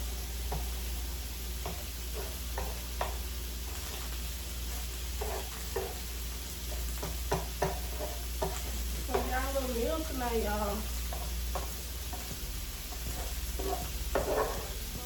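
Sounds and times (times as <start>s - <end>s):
food sizzling on a griddle: 0.0s - 15.0s
scrapes and taps on griddle: 0.5s - 0.8s, 1.6s - 9.4s, 11.1s - 14.8s.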